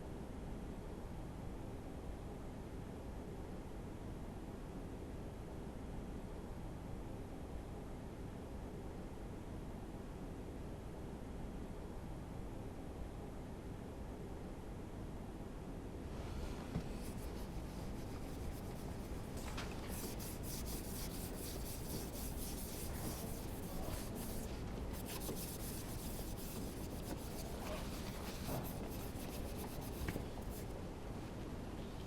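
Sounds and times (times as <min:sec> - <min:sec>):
scratchy rubbing: 0:16.4 - 0:30.7.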